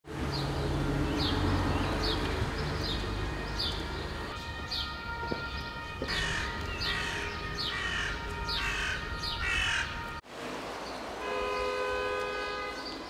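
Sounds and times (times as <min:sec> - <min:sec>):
bird calling: 0:04.6 - 0:10.1.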